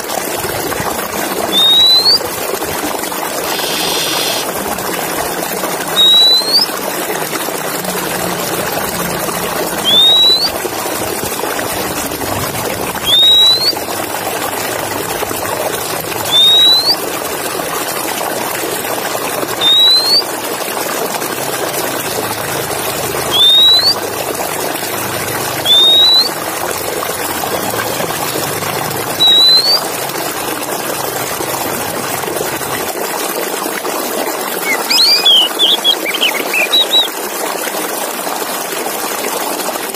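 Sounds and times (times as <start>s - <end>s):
bird whistling rising note: 1.5s - 2.2s, 3.5s - 4.5s, 5.9s - 6.7s, 9.8s - 10.6s, 13.0s - 13.8s, 16.3s - 17.0s, 19.6s - 20.2s, 23.3s - 24.0s, 25.6s - 26.3s, 29.2s - 29.8s, 34.6s - 37.1s.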